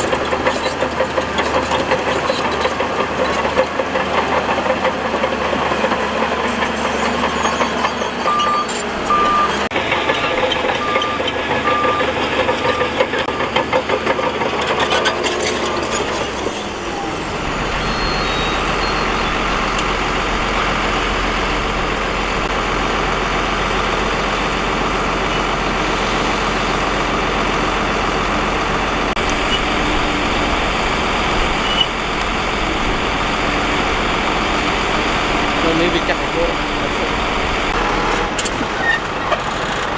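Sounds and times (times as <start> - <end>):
engine deep rumble: 0.0 - 39.9
heavy machinery running: 0.0 - 39.9
reversing alarm beeping: 5.5 - 13.6, 15.7 - 22.5, 31.4 - 32.0.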